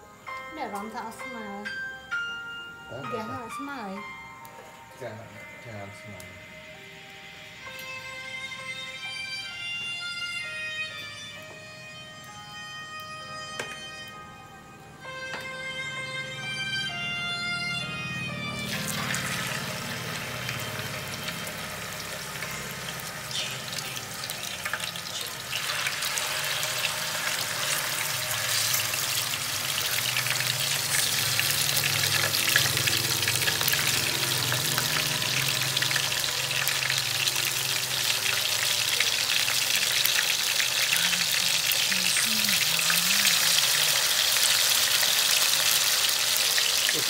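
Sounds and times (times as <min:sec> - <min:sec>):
meat sizzling in frying pan: 0:18.7 - 0:47.0.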